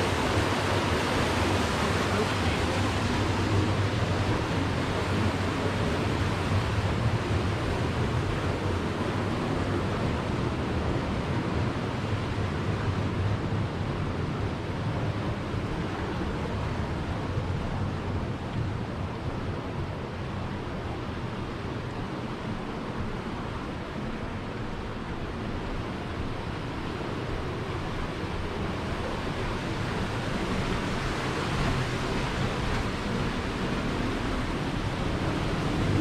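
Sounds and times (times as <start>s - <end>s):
boat engine drone: 0.0s - 11.0s, 14.9s - 36.0s
wind and water rushing: 0.0s - 36.0s.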